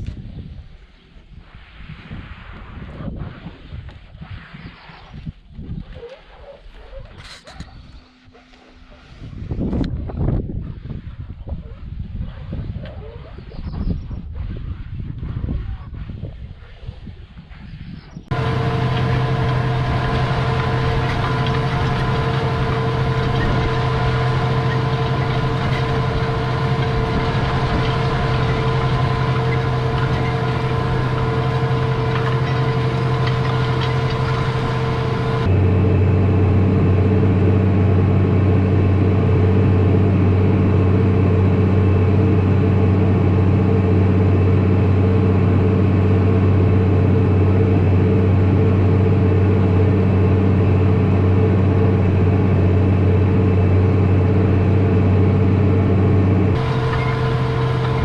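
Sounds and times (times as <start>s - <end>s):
tractor engine running: 18.3s - 58.0s.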